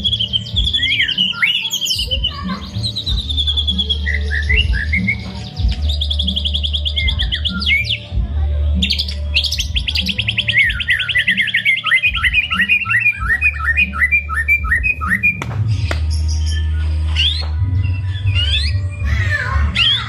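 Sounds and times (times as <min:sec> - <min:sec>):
bird singing chirping notes: 0:00.0 - 0:08.2, 0:08.8 - 0:20.0.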